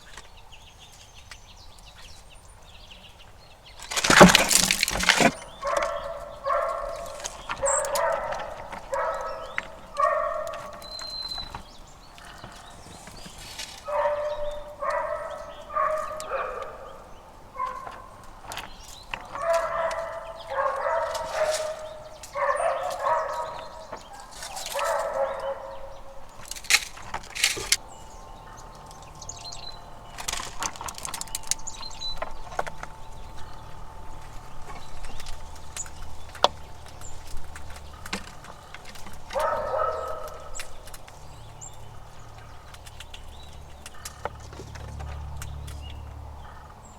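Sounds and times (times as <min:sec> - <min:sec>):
animal calling: 0:04.2 - 0:26.6, 0:27.8 - 0:42.7.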